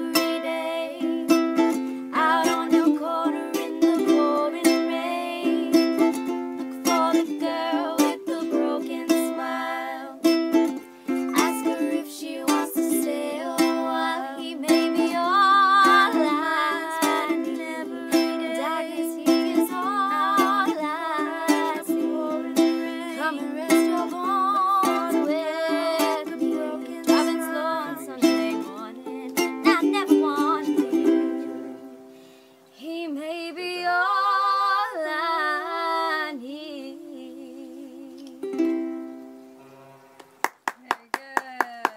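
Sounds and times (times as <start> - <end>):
young woman singing: 0.0 - 32.0, 32.7 - 38.8
ukulele strumming: 0.0 - 32.2, 38.3 - 39.4.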